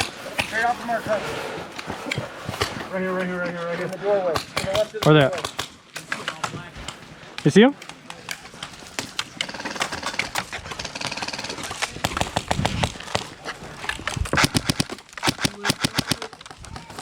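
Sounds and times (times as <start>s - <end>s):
airsoft guns firing: 9.0s - 13.4s, 14.4s - 17.0s.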